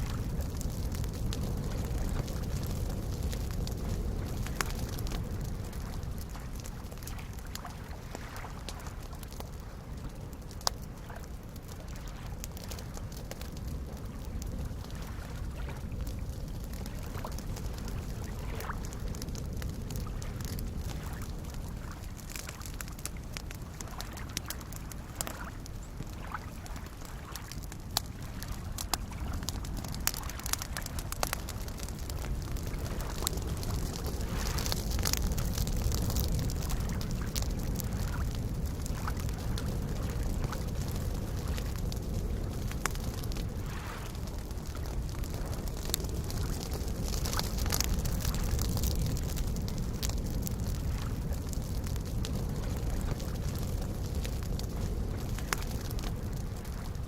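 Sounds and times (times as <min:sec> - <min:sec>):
campfire crackling and popping: 0:00.0 - 0:57.0
lake waves washing at shore: 0:00.0 - 0:57.0
lake waves lapping: 0:05.6 - 0:09.1, 0:14.8 - 0:15.8, 0:20.9 - 0:23.0, 0:23.6 - 0:38.3, 0:43.3 - 0:45.6.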